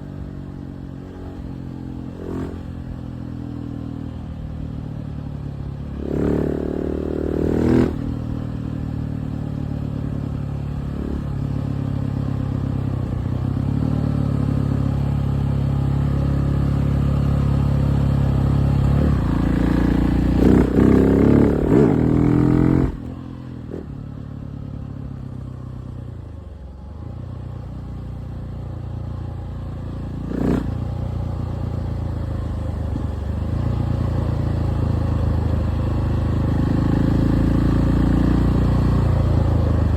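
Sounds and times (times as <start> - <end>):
motorcycle engine revving: 0.0 - 4.8, 5.8 - 25.2, 29.6 - 39.9.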